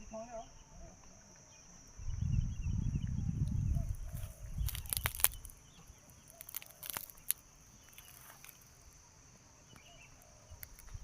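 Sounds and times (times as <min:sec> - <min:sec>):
crackling clicks: 0:03.4 - 0:08.7, 0:10.6 - 0:11.0.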